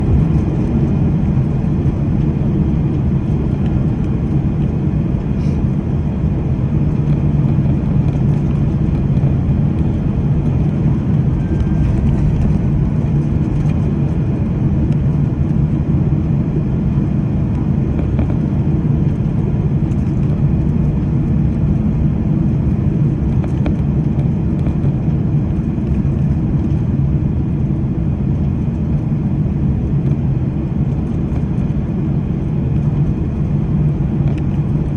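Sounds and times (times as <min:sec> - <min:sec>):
airliner cabin engine rumble: 0:00.0 - 0:34.9.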